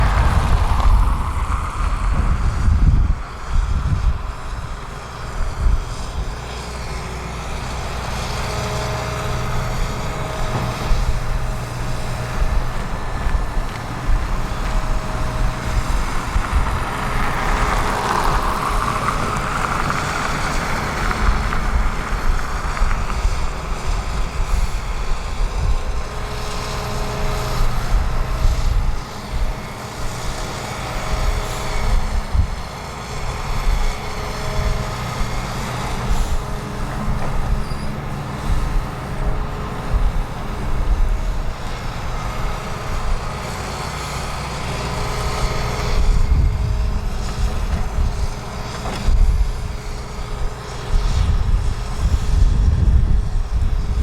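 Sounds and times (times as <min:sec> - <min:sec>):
diesel excavator engines: 0:00.0 - 0:54.0
faint short whines: 0:37.5 - 0:38.0.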